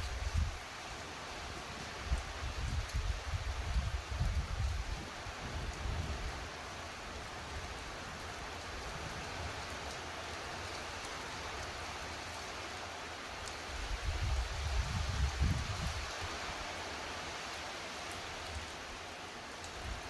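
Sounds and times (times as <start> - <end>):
steady rain hiss: 0.0 - 20.0
wind buffeting microphone: 2.1 - 6.4, 13.8 - 16.4.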